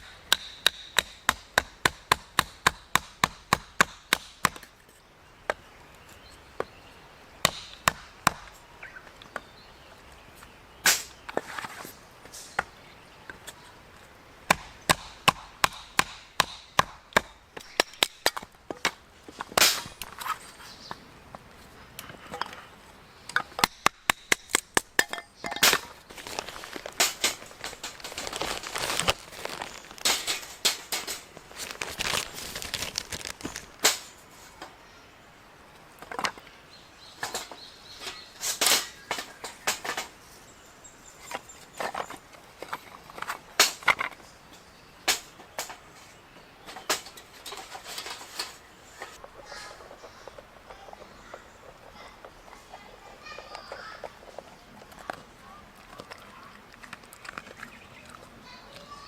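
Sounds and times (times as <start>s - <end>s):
chopping strikes on wood: 0.3s - 4.7s, 7.4s - 8.6s, 14.5s - 19.8s.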